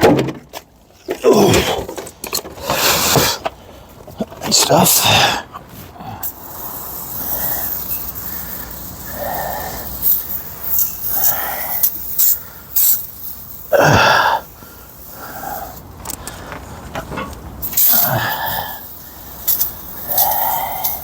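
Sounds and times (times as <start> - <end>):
pressure washer spraying: 6.2 - 15.9, 17.6 - 21.0.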